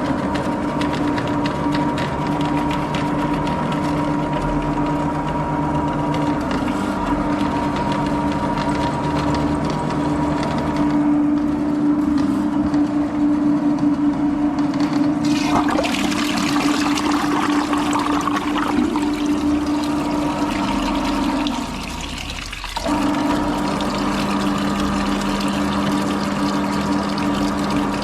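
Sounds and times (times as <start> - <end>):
machine motor humming: 15.1 - 28.0
rushing splashing water: 15.2 - 28.0.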